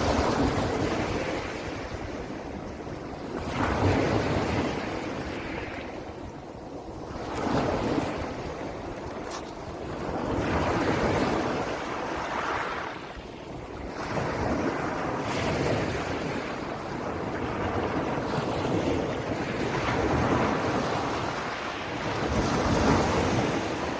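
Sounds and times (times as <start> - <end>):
ocean waves breaking: 0.0 - 23.9
wind buffeting microphone: 0.0 - 23.9.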